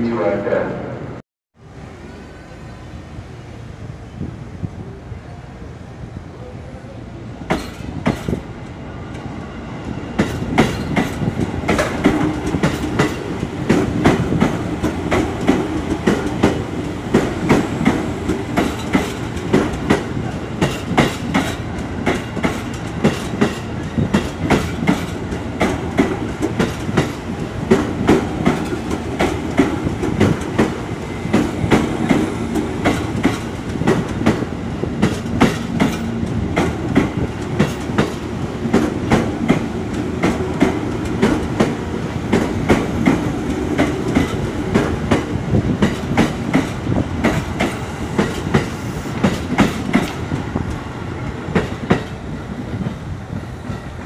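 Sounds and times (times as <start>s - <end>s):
train rumble: 0.0s - 54.0s
train wheels clacking over rail joints: 7.5s - 8.4s, 10.2s - 50.8s, 51.5s - 52.2s.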